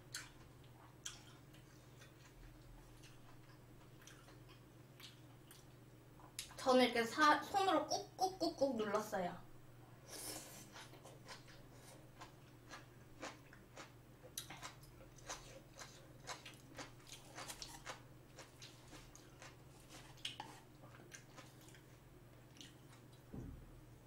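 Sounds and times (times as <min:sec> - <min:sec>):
chewing crunchy food: 0:00.1 - 0:06.6, 0:10.6 - 0:23.3.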